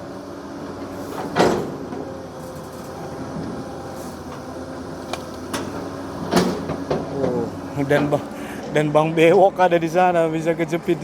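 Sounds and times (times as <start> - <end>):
excavator engine running: 0.0 - 11.0.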